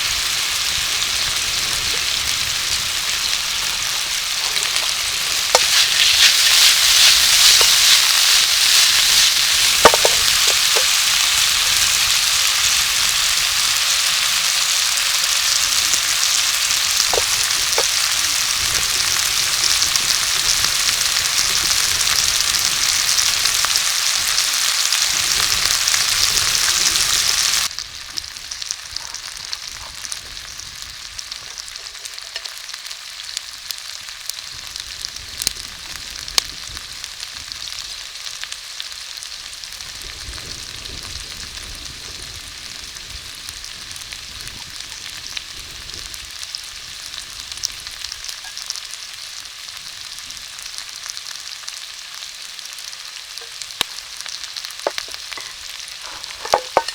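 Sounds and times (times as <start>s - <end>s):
food sizzling in a pan: 0.0s - 56.9s
utensil knocking against pan: 5.5s - 10.9s, 54.9s - 56.9s.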